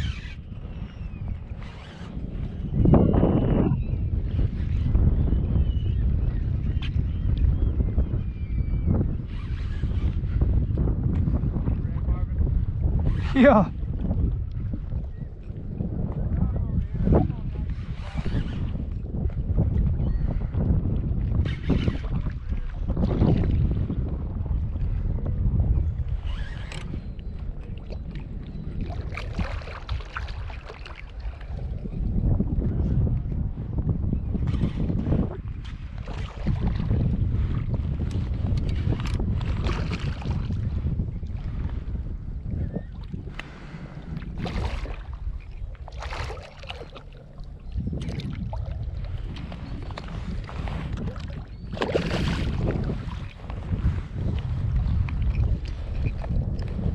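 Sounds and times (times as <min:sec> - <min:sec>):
wind buffeting microphone: 0:00.0 - 0:56.9
water splashing and sloshing: 0:27.4 - 0:31.9, 0:37.6 - 0:41.8, 0:42.9 - 0:56.9.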